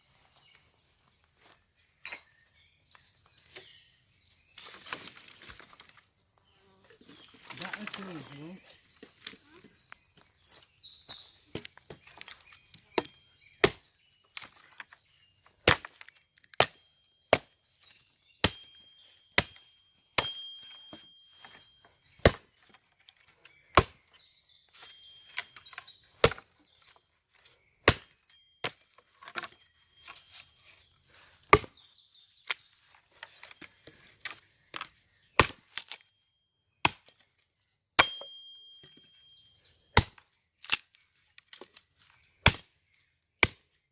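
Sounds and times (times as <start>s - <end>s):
hand tool striking: 19.4s - 21.6s, 38.0s - 39.1s
faint high ringing: 19.6s - 21.8s, 38.0s - 39.4s.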